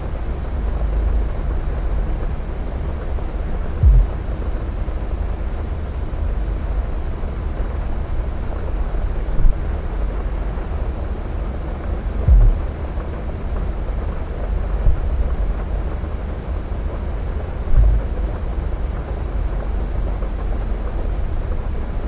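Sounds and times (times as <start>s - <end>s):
low thumps: 3.8s - 4.3s, 12.2s - 12.8s, 17.7s - 18.2s
wind on microphone: 3.8s - 4.3s, 12.2s - 12.8s
distant jet engines rumbling: 3.8s - 4.5s, 12.2s - 13.2s.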